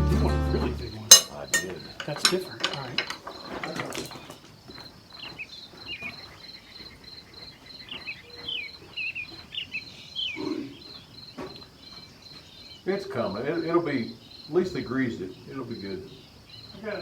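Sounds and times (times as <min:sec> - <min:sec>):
insect chirping: 0:00.8 - 0:17.0.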